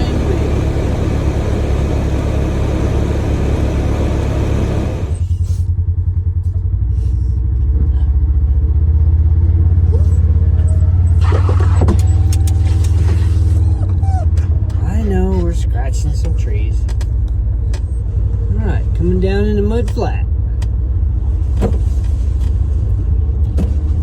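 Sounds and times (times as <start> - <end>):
rush of driving noise: 0.0 - 5.3
vehicle engine droning: 0.0 - 24.0.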